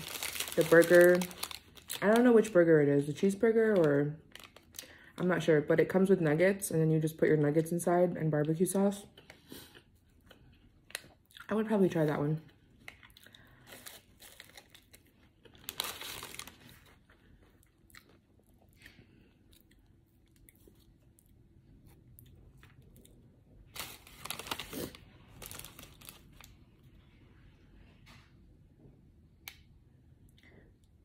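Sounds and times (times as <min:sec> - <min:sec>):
person chewing and crunching food: 0:12.5 - 0:26.4.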